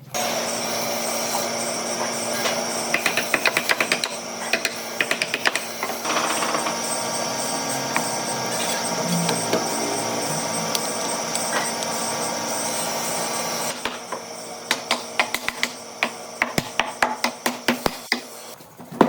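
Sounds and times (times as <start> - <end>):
power tool running: 0.0 - 18.6
rapid sharp knocks: 2.9 - 7.1.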